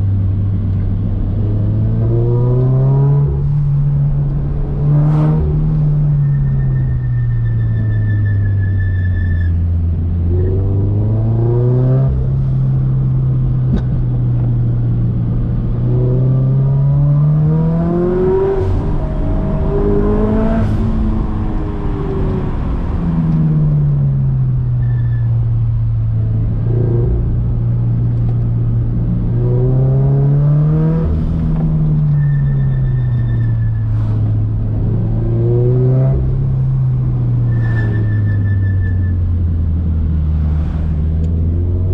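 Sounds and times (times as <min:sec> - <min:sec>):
car engine revving: 0:09.7 - 0:24.7, 0:25.6 - 0:38.5.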